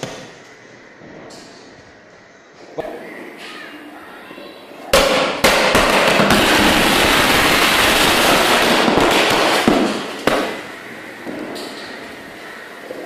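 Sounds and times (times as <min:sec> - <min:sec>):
loud bangs: 0:04.9 - 0:12.6
firecrackers crackling in a microwave: 0:05.0 - 0:12.3.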